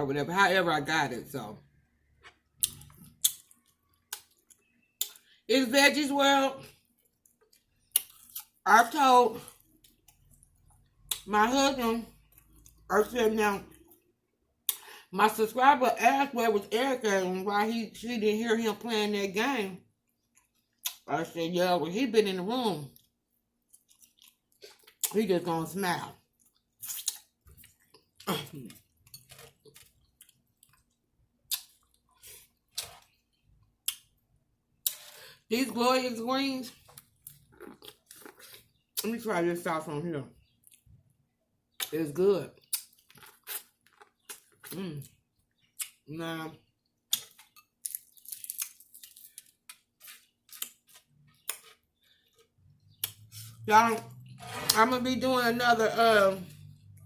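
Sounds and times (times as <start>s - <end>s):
person chewing food: 1.9s - 5.4s, 6.7s - 8.6s, 9.4s - 11.3s, 20.0s - 21.0s, 23.0s - 25.1s, 26.2s - 34.2s, 36.8s - 39.0s, 42.6s - 46.1s, 46.7s - 53.6s
wet mouth clicks and smacks: 2.6s - 5.2s, 31.5s - 31.9s.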